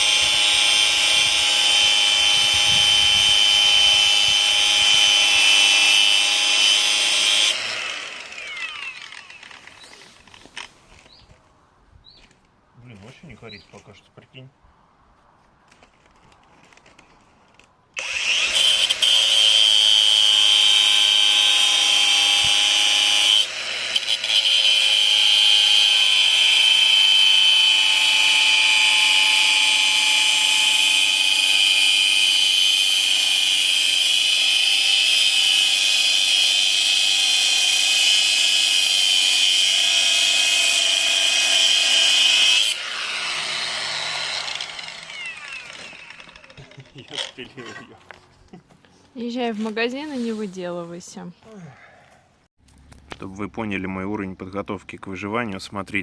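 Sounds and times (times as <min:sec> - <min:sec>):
angle grinder cutting metal: 0:00.0 - 0:10.1, 0:18.0 - 0:48.0.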